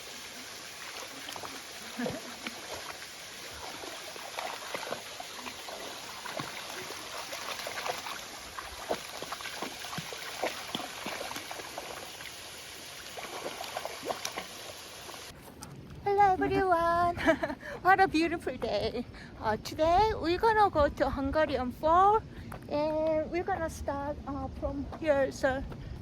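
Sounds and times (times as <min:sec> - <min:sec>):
stream water trickling over rocks: 0:00.0 - 0:15.4.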